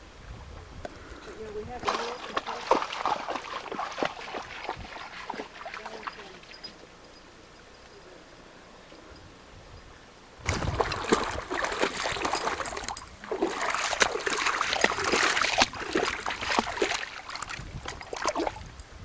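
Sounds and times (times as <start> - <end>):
water splashing and trickling: 1.6 - 7.9, 10.4 - 19.0.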